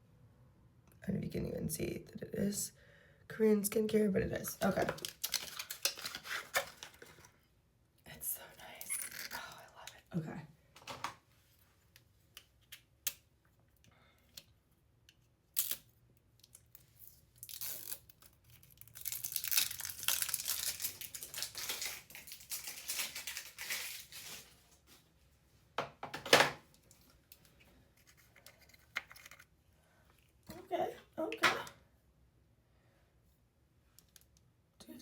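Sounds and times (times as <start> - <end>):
plastic packaging crinkling and tearing: 4.6 - 7.3, 16.4 - 24.8.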